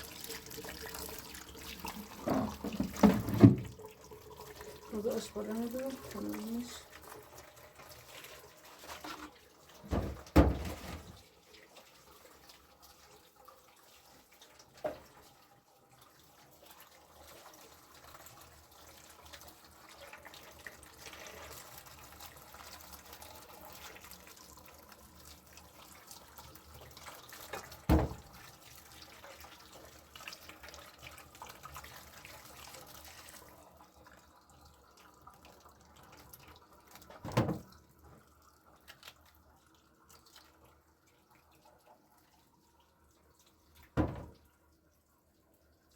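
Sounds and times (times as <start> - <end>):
tap water splashing into basin: 0.0 - 13.0, 13.7 - 15.4, 25.8 - 33.1, 35.4 - 39.3, 43.8 - 44.6.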